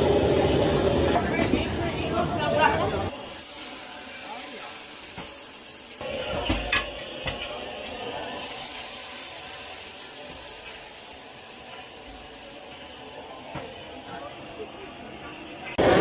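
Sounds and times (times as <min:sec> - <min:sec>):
hiss of frying and steam: 0:03.1 - 0:14.8.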